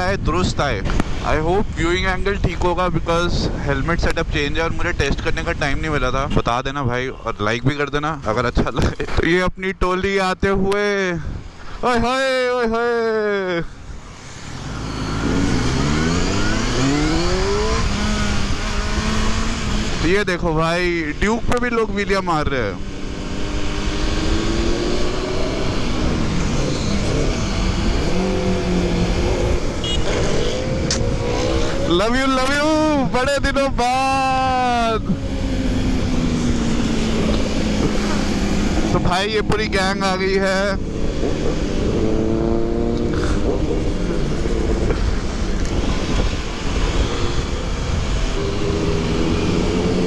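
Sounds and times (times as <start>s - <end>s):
wind rush on microphone: 0.0s - 6.2s, 10.4s - 12.0s, 22.6s - 50.0s
motorcycle engines revving: 10.8s - 50.0s.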